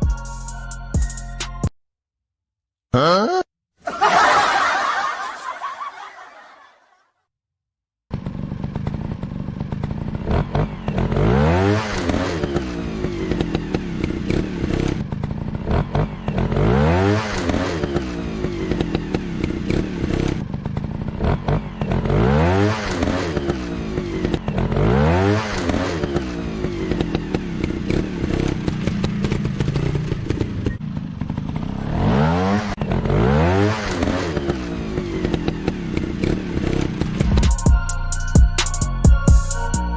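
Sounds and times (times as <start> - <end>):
dirt bike engine revving: 8.1 - 37.6.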